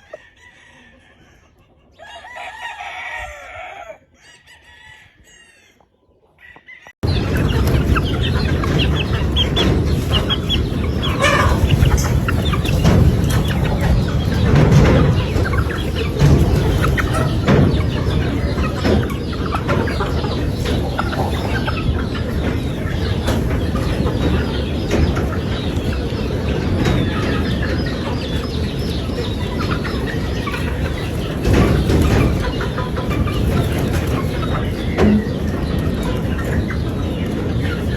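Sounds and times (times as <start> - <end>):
rooster crowing: 0.0 - 1.4, 2.0 - 5.8
chickens clucking: 0.0 - 37.9.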